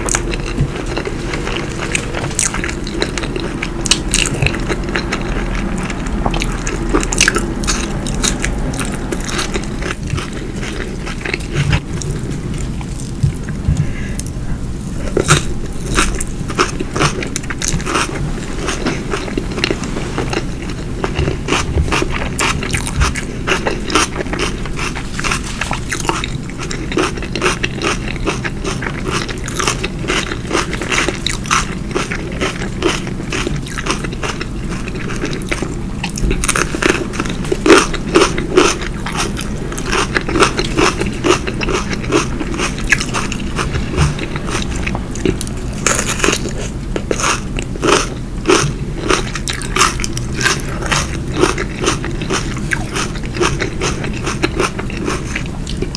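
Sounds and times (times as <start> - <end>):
crunchy chewing: 0.0 - 55.9.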